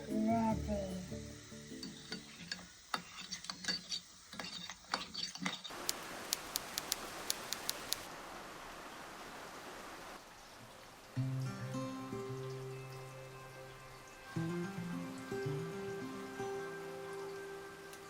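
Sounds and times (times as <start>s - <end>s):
sharp drip ticks: 5.7s - 8.1s
steady rain falling: 5.7s - 18.0s.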